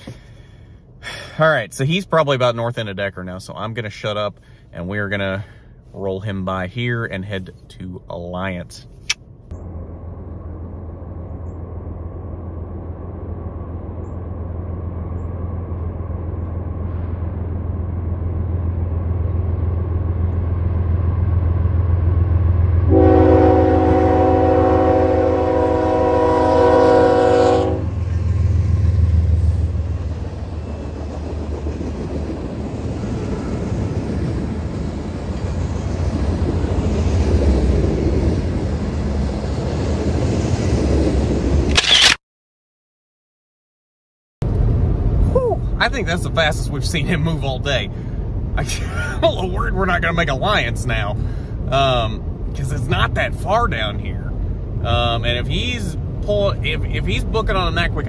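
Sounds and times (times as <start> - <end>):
diesel locomotive rumble: 0.0 - 41.8, 44.4 - 58.0
freight cars wheel and rail noise: 0.0 - 42.2, 44.4 - 58.0
train horn blast: 22.8 - 28.1.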